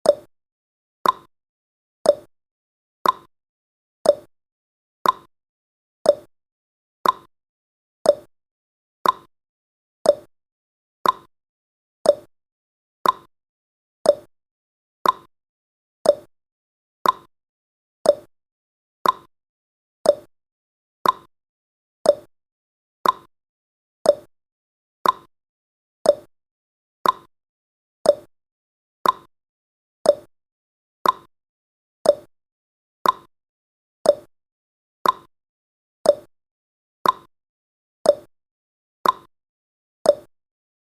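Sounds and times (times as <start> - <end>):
timer ticking: 0.0 - 0.3, 1.0 - 1.3, 2.0 - 2.3, 3.0 - 3.3, 4.0 - 4.3, 5.0 - 5.3, 6.0 - 6.3, 7.0 - 7.3, 8.0 - 8.3, 9.0 - 9.3, 10.0 - 10.3, 11.0 - 11.3, 12.0 - 12.3, 13.0 - 13.3, 14.0 - 14.3, 15.0 - 15.3, 16.0 - 16.3, 17.0 - 17.3, 18.0 - 18.3, 19.0 - 19.3, 20.0 - 20.3, 21.0 - 21.3, 22.0 - 22.3, 23.0 - 23.3, 24.0 - 24.3, 25.0 - 25.3, 26.0 - 26.3, 27.0 - 27.3, 28.0 - 28.3, 29.0 - 29.3, 30.0 - 30.3, 31.0 - 31.3, 32.0 - 32.3, 33.0 - 33.3, 34.0 - 34.3, 35.0 - 35.3, 36.0 - 36.3, 37.0 - 37.3, 38.1 - 38.3, 39.0 - 39.3, 40.1 - 40.3.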